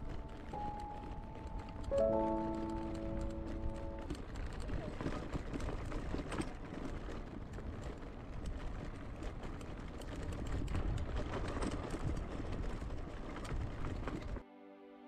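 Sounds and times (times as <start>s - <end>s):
scooter rattling clatter: 0.0s - 14.4s
wind on microphone: 3.5s - 14.4s.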